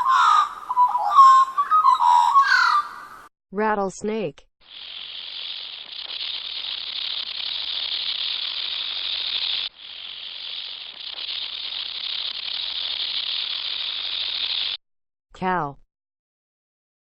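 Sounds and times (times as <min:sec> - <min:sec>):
rattlesnake tail rattling: 0:04.6 - 0:14.8.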